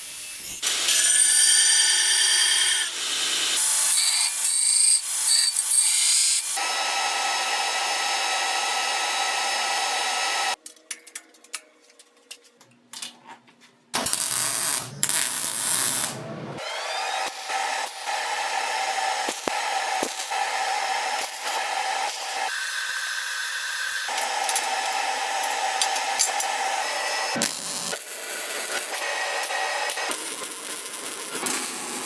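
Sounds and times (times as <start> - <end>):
angle grinder on steel: 14.0 - 32.0.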